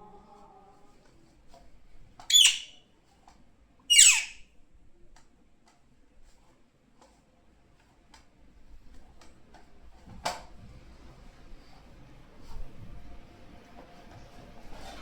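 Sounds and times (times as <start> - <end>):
parrot squawking: 2.3 - 2.8, 3.9 - 4.4.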